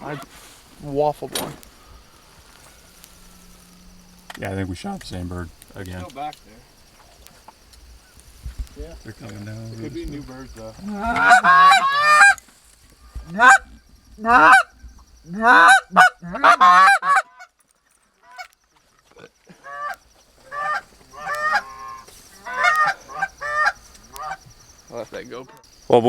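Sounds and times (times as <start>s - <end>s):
goose honking and clucking: 10.8s - 12.4s, 13.2s - 14.7s, 15.3s - 17.6s, 19.6s - 24.4s.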